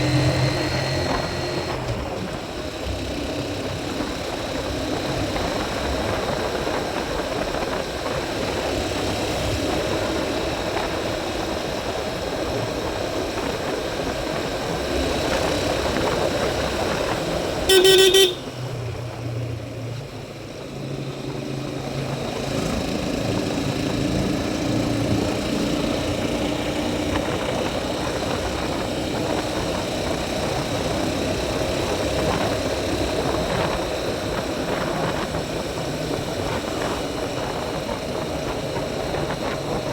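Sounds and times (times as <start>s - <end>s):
motorcycle engine and road noise: 0.0s - 39.9s
horn toot: 17.7s - 18.6s.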